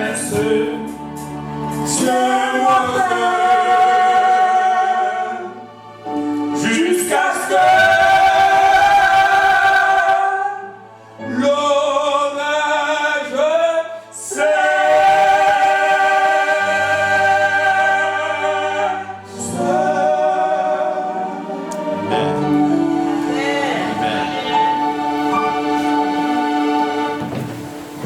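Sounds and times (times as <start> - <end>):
man and woman singing: 0.0 - 1.1, 1.8 - 5.7, 6.6 - 27.2
low sustained accompaniment notes: 14.4 - 28.0.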